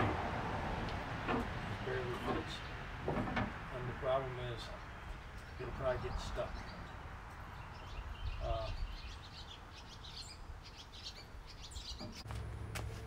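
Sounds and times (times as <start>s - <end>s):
small birds chirping: 4.1s - 12.3s.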